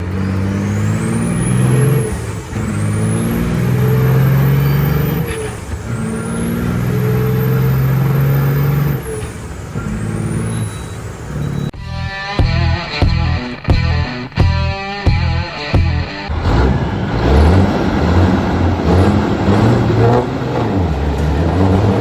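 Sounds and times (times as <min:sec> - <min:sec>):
high engine whistle: 0:00.0 - 0:11.7
diesel truck engine under load: 0:00.0 - 0:11.8, 0:16.3 - 0:22.0.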